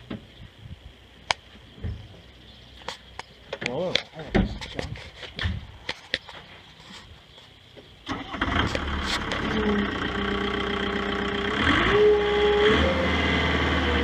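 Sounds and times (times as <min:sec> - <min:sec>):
steady engine whine: 0:07.8 - 0:14.0
loader engine starting and running: 0:08.0 - 0:14.0.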